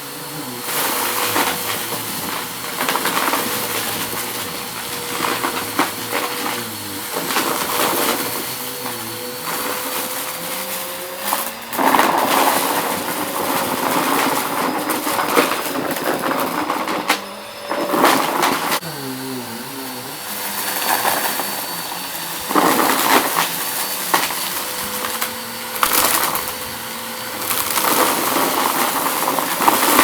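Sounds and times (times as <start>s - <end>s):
vacuum cleaner motor hum: 0.0s - 30.0s
debris crackling in vacuum: 0.1s - 30.0s.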